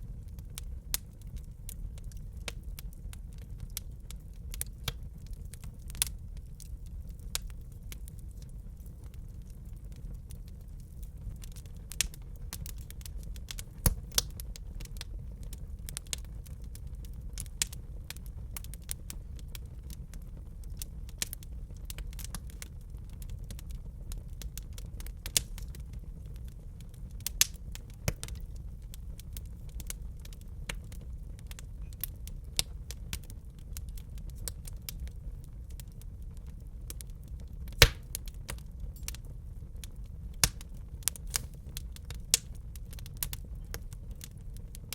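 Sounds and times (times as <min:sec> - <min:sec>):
flames rumbling in fireplace: 0:00.0 - 0:44.9
crackling and popping logs: 0:00.3 - 0:15.1, 0:27.2 - 0:35.1, 0:36.4 - 0:39.2, 0:39.8 - 0:44.9.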